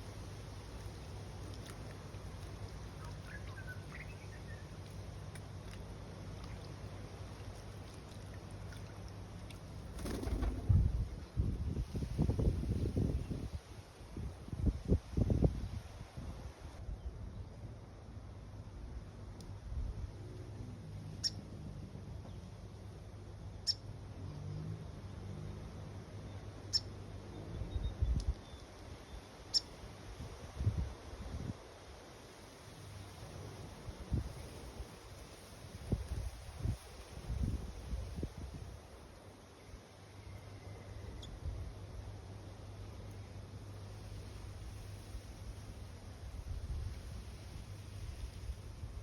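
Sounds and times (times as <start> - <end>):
low outdoor rumble: 0.0 - 14.8, 15.6 - 49.0
faint bird chirps: 3.0 - 4.8, 40.1 - 41.4
wind buffeting microphone: 10.1 - 16.8, 35.7 - 38.9.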